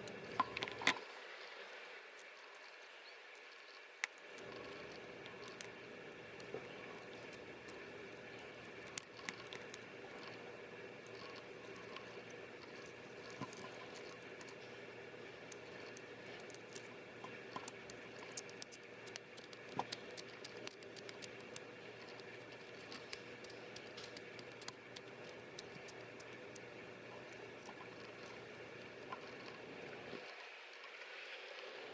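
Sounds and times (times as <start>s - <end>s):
faint steady hum: 0.0s - 31.9s
small tool clicks and scratches: 15.4s - 29.6s.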